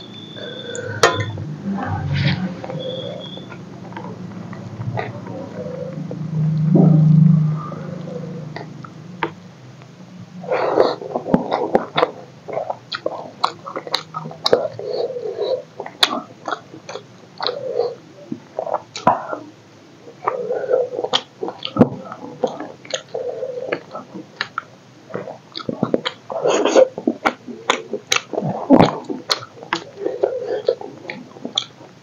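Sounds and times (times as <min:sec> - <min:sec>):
wet chewing and mouth clicks: 0:10.6 - 0:19.5, 0:20.2 - 0:32.0.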